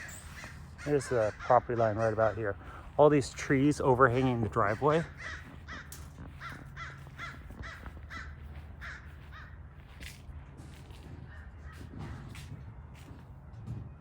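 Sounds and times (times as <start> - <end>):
bird calling: 0.0 - 9.6.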